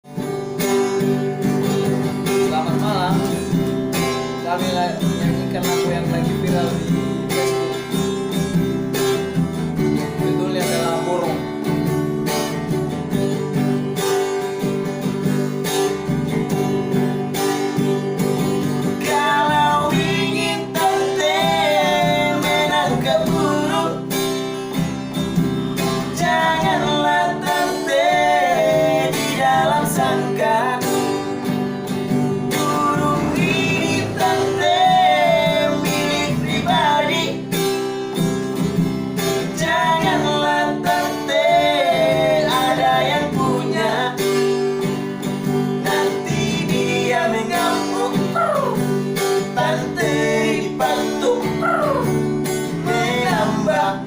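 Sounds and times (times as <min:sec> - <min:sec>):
acoustic guitar strumming: 0:00.0 - 0:54.0
bending melody line: 0:30.0 - 0:37.5.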